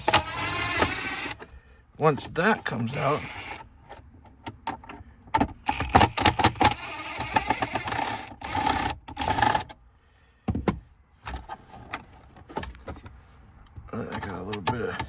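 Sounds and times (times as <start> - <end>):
plastic scraping and rustling: 11.2 - 14.4.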